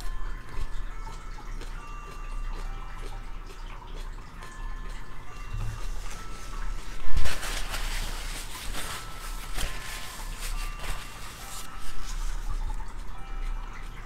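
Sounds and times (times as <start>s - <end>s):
person chewing chili pepper: 0.0s - 7.3s.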